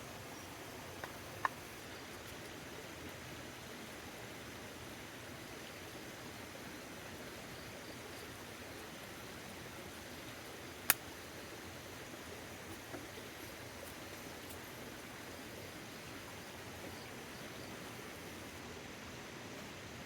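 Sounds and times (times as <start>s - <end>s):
faint ticks: 0.4s - 2.9s, 10.8s - 11.2s, 12.6s - 14.8s.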